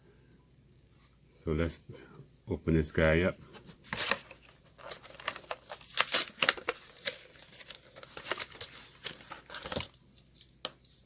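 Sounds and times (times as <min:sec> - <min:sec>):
plastic packaging crinkling and tearing: 0:03.8 - 0:11.0.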